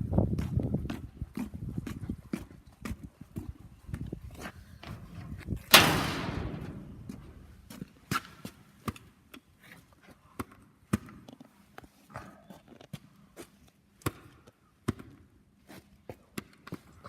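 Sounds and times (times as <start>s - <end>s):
loud slam: 5.7s - 7.6s.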